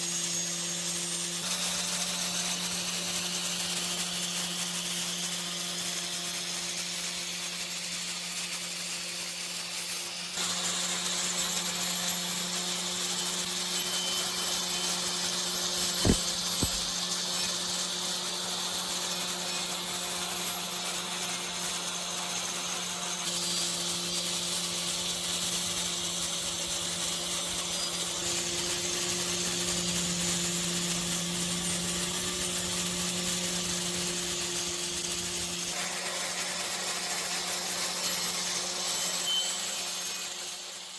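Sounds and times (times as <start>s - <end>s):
power tool grinding metal: 0.0s - 40.9s
sharp knocks: 15.8s - 16.9s.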